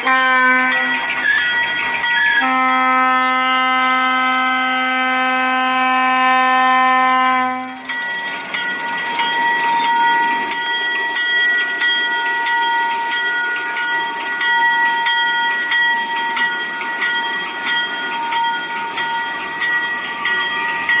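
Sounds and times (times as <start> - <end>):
locomotive horn: 0.0 - 1.4, 2.2 - 7.9
locomotive bell ringing: 0.0 - 21.0
locomotive engine running: 0.0 - 21.0.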